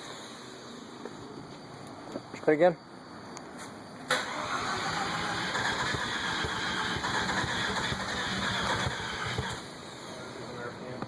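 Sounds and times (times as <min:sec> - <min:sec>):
engine cranking without starting: 0:04.1 - 0:10.2.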